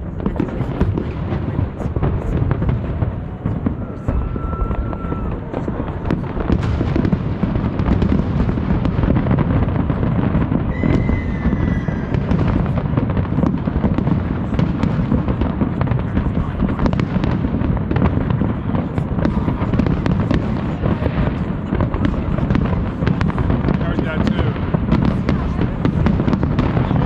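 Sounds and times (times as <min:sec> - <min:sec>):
fireworks booming and crackling: 0:00.0 - 0:27.0
high firework whistle: 0:03.6 - 0:05.6, 0:10.7 - 0:12.4.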